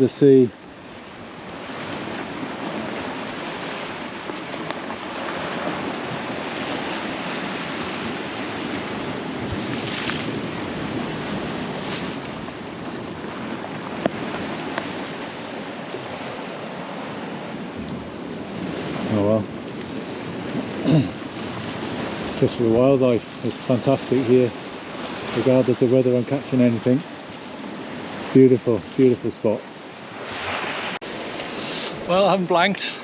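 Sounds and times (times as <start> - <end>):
sea surf washing on shore: 0.0 - 33.0
wind buffeting microphone: 0.0 - 33.0.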